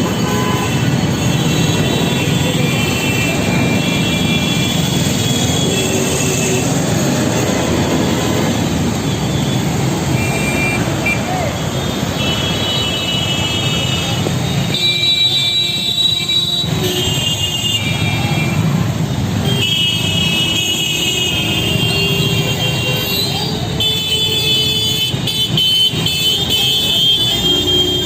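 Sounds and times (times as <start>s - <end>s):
engines rumbling: 0.0s - 28.0s
vehicle horns honking: 0.0s - 28.0s.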